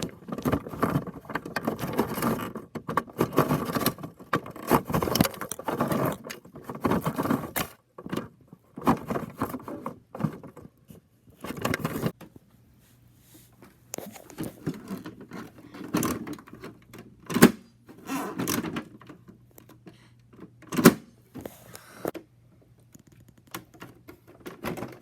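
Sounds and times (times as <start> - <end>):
plastic toy clicking and rattling: 0.0 - 10.6.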